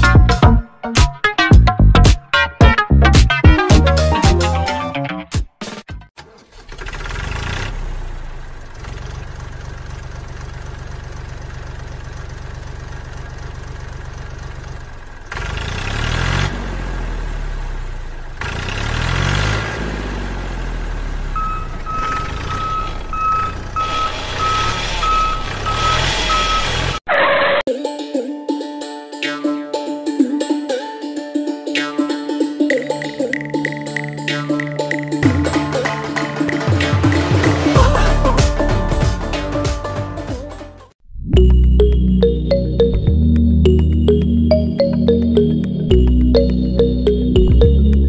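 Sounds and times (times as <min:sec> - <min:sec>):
model tractor engine revving: 0:06.2 - 0:27.7
reversing beep: 0:21.4 - 0:27.0.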